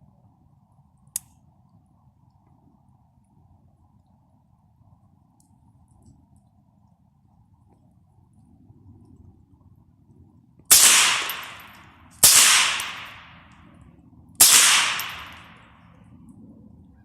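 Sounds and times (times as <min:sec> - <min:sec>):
gunshots with echo: 0:10.7 - 0:13.5, 0:14.4 - 0:15.6.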